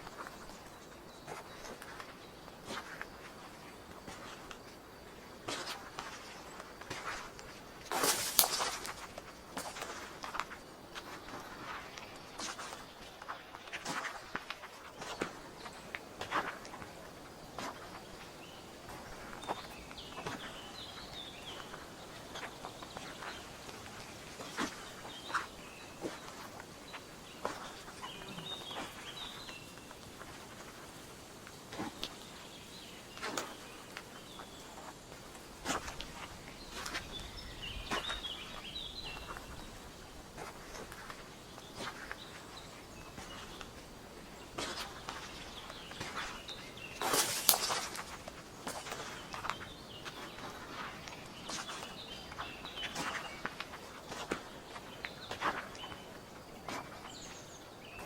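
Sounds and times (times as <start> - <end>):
birds chirping: 0.0 - 58.0
steady outdoor hiss: 0.0 - 58.0
footsteps crunching through leaves: 5.5 - 16.6, 44.5 - 58.0
footsteps crunching on leaf litter: 5.5 - 58.0.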